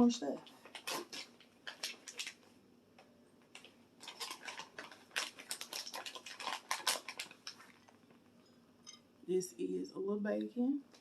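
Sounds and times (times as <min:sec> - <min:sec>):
food toppings clicking and rustling: 0:00.4 - 0:02.5, 0:03.4 - 0:08.3.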